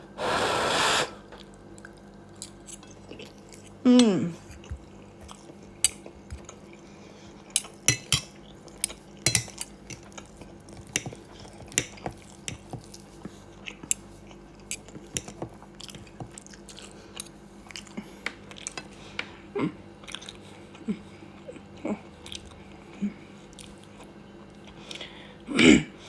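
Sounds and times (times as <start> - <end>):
person chewing: 6.3 - 18.8, 22.2 - 22.6.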